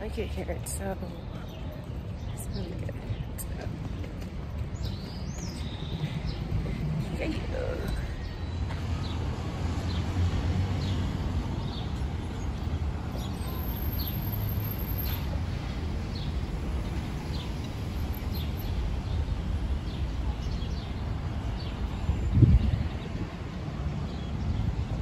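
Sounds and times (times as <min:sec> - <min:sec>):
street background rumble: 0:00.0 - 0:25.0
birds chirping: 0:00.6 - 0:10.2.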